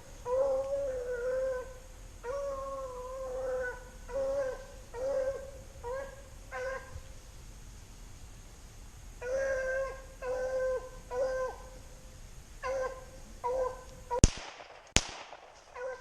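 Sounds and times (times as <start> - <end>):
dog baying: 12.6 - 14.2, 15.8 - 16.0.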